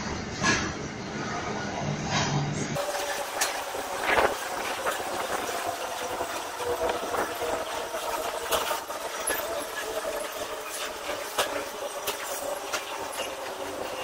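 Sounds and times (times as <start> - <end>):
train wheels rushing on rail: 0.0 - 14.0
wheels clicking over track: 2.8 - 14.0.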